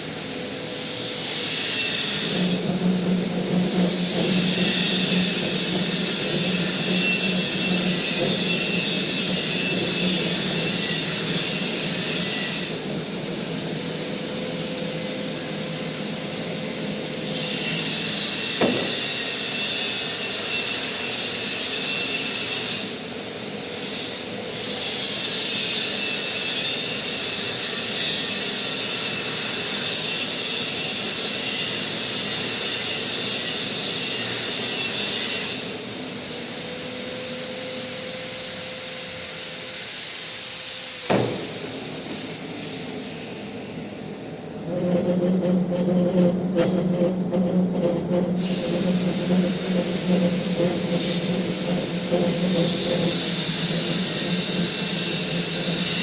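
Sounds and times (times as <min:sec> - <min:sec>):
metal lathe running: 0:01.5 - 0:14.5, 0:41.5 - 0:56.0.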